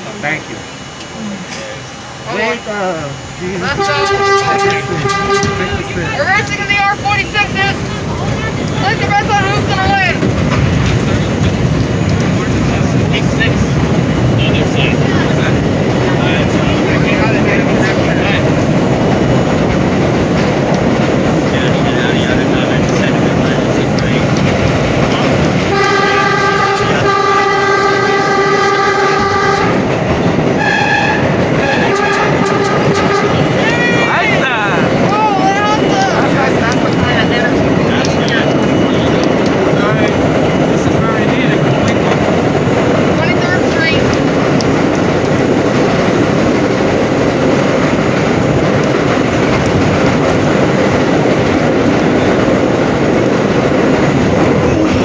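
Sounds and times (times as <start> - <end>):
train rumbling on rails: 0.0 - 55.0
train horn blasts: 3.6 - 6.6, 25.7 - 34.0.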